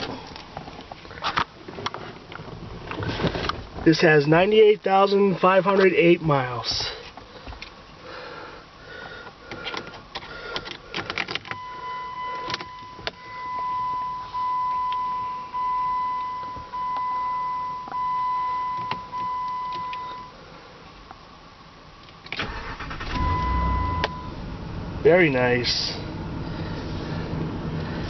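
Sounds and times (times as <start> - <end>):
dashboard warning chime: 11.5 - 20.4, 23.0 - 24.4.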